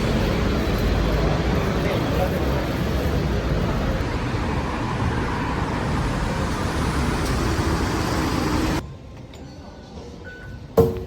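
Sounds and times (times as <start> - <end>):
road traffic rumble: 0.0 - 8.8.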